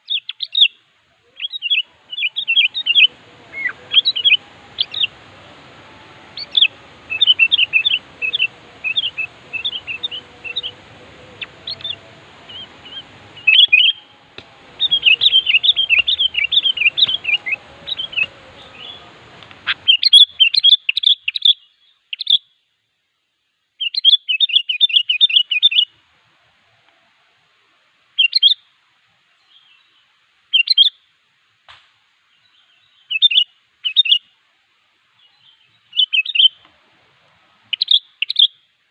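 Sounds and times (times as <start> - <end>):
background hiss: 0.0 - 21.9, 25.0 - 38.9
bird singing chattering phrases: 1.4 - 20.5.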